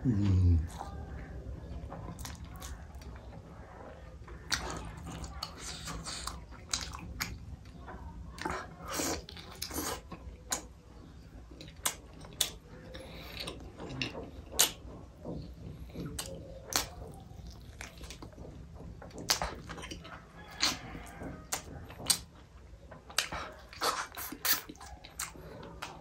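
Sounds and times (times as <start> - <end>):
person chewing with mouth open: 2.0 - 3.3, 4.2 - 26.0
mouth clicks and smacks: 11.6 - 18.4, 19.1 - 20.0, 23.0 - 26.0.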